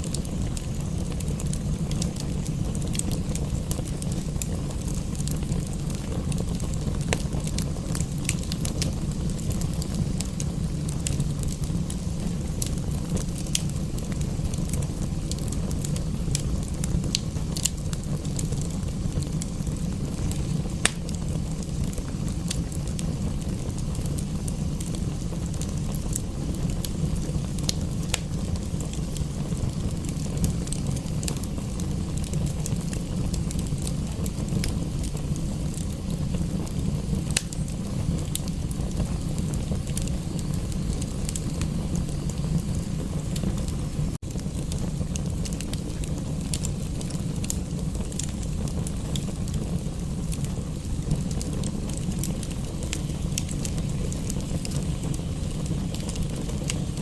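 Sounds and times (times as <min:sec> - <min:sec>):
fire popping: 0:00.0 - 0:57.0
wood fire crackling: 0:00.0 - 0:57.0.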